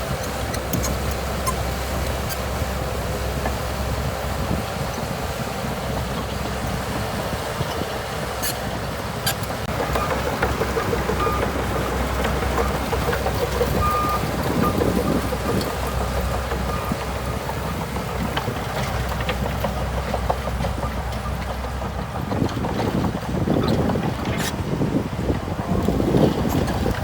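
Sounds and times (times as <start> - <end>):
bulldozer diesel engine running: 0.0 - 27.0.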